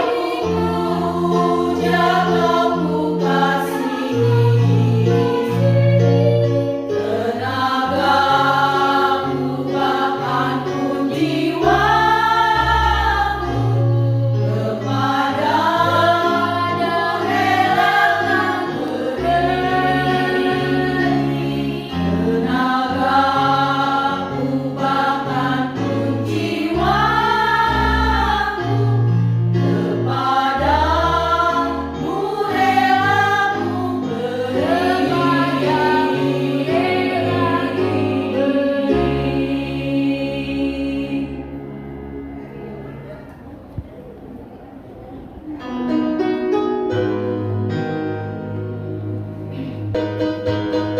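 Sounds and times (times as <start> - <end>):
choir singing in parts: 0.0 - 43.3
held bass notes: 10.3 - 44.6.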